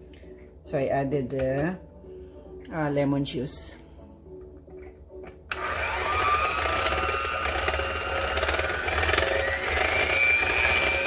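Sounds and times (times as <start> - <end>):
electric mixer motor whine: 5.5 - 11.0.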